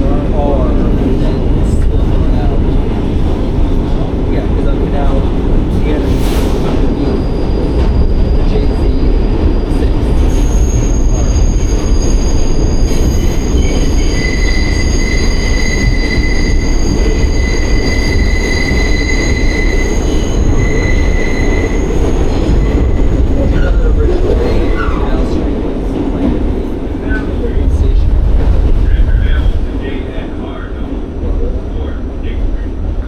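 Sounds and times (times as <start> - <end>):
subway train rumbling: 0.0 - 33.0
wheels squealing: 7.0 - 25.1.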